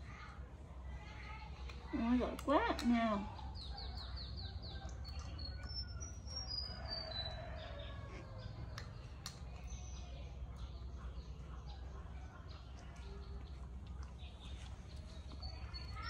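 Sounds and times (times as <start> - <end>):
small bird chirping: 2.8 - 11.8.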